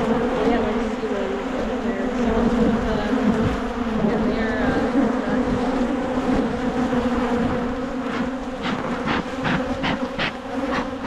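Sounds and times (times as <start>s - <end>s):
honeybees buzzing: 0.0s - 11.0s
short scratchy noises: 8.1s - 11.0s.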